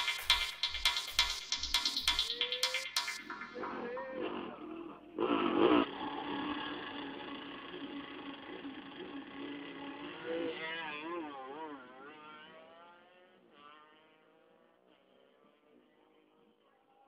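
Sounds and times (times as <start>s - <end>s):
motorcycle engines revving: 3.6s - 16.4s.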